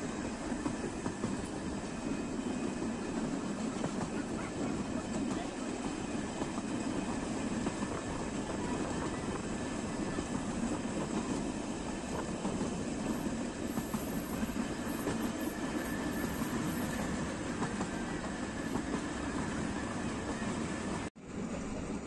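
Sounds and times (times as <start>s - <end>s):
train wheels rumbling on track: 0.0s - 22.0s
faint high wheel squeal: 13.2s - 17.2s.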